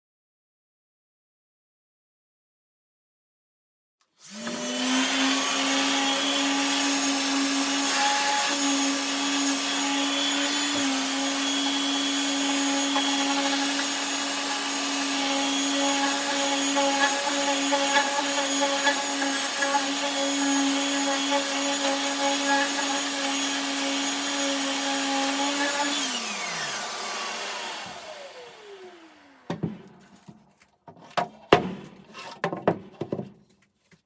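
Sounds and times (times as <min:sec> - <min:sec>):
electric sander running: 0:04.3 - 0:30.0.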